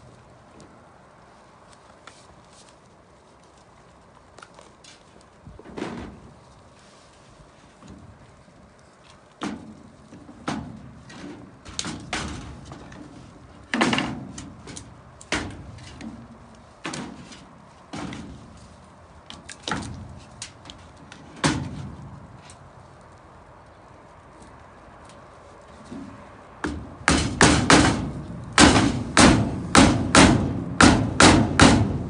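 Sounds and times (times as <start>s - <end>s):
hard knocks and thuds: 26.0s - 32.0s.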